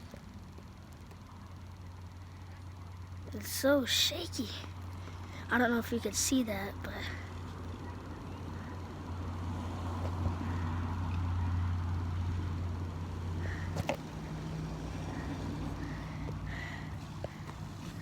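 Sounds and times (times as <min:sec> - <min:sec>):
dirt bike engine running: 0:06.8 - 0:18.0.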